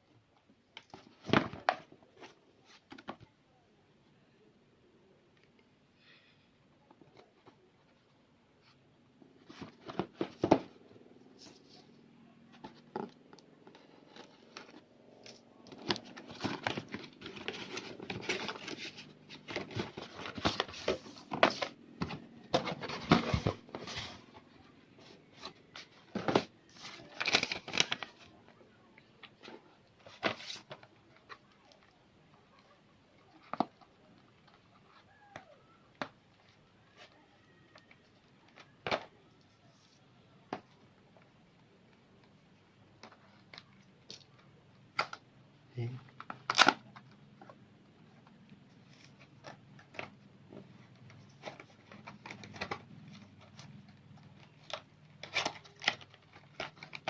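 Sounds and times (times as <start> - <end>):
packaging being handled: 12.5 - 28.3.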